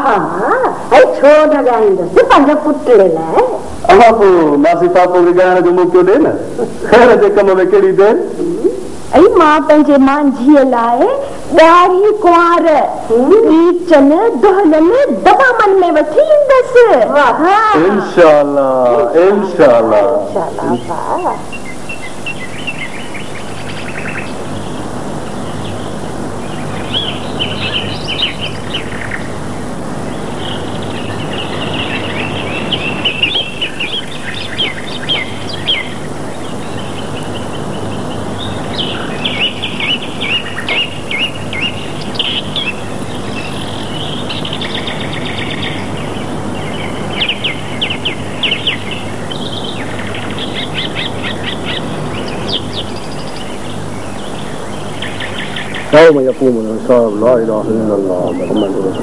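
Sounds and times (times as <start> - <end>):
background hiss: 0.0 - 59.0
low hum: 0.0 - 59.0
small birds chirping: 0.0 - 59.0.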